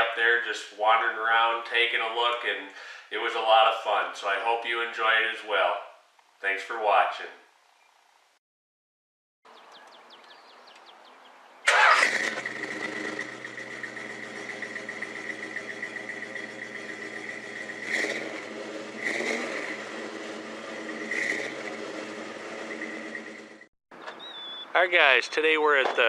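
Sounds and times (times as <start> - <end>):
car engine cranking and idling: 11.7 - 23.7
engine throttle blips: 11.7 - 23.7.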